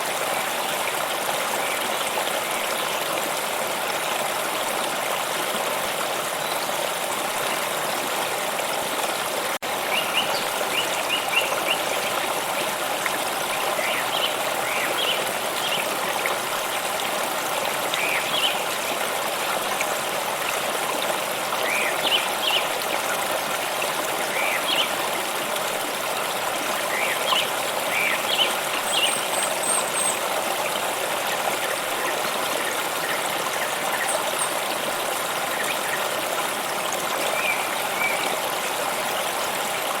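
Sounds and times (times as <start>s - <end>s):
small stream trickling: 0.0s - 40.0s.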